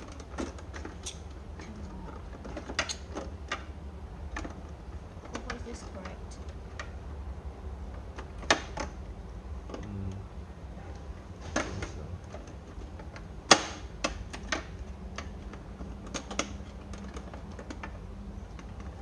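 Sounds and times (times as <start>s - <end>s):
plastic parts clicking: 11.6s - 19.0s.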